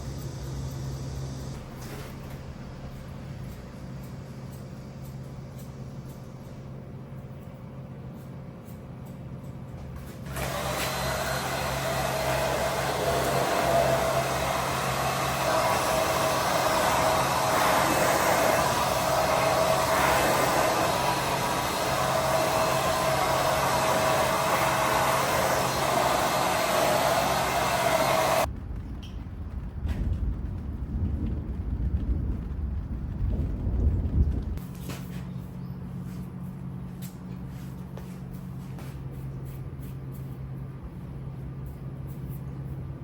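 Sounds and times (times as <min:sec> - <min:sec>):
hair dryer running: 0:10.2 - 0:28.5.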